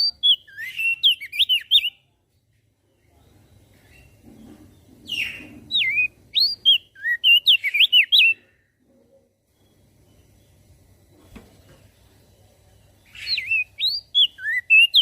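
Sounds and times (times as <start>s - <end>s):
bird singing whistled phrase: 0.0s - 2.0s, 5.1s - 8.4s, 13.1s - 15.0s
faint low hum: 0.0s - 15.0s.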